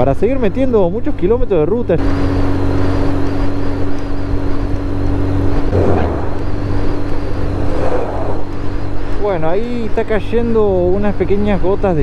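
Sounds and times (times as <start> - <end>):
motorcycle engine running: 0.0 - 12.0
truck rushing past: 5.3 - 9.4.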